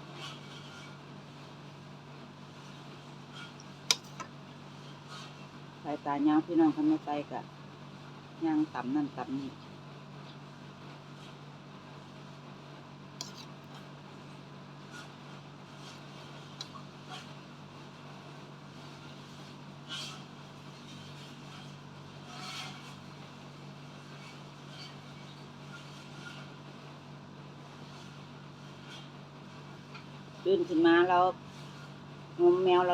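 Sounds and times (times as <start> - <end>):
steady low hum: 0.0 - 32.9
faint short clicks and scrapes: 2.6 - 5.5, 13.2 - 13.9.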